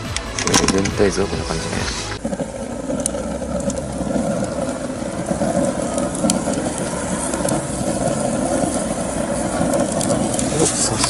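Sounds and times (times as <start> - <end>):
fire crackles: 0.0 - 11.0
stove fire rumbling: 0.0 - 11.0.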